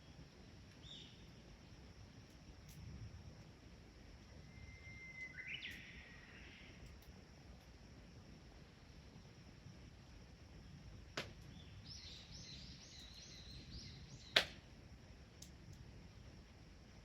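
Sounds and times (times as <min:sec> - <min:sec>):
faint outdoor background: 0:00.0 - 0:17.0
bonfire wood popping: 0:11.0 - 0:12.0, 0:14.2 - 0:16.0.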